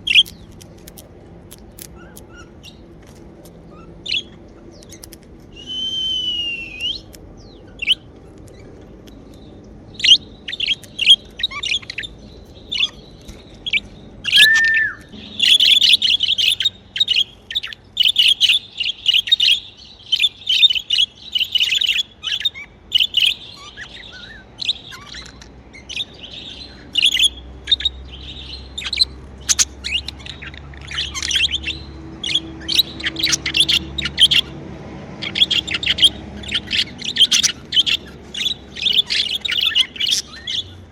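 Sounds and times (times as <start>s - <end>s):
budgerigars chirping: 0.0s - 5.2s, 6.1s - 40.9s
whistled bird note: 5.5s - 7.1s, 14.3s - 16.1s.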